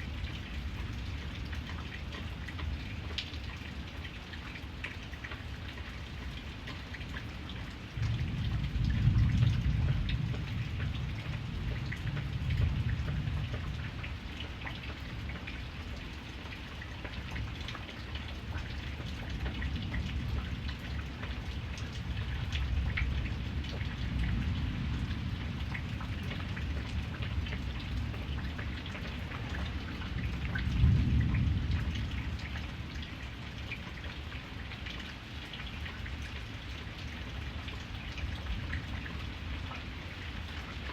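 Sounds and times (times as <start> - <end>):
rain pattering: 0.0 - 40.9
thunder rumbling: 8.0 - 13.8, 30.2 - 32.7.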